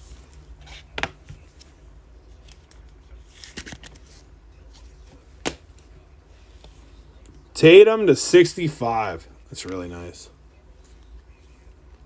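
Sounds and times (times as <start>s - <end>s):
trading cards rustling: 0.0s - 5.9s.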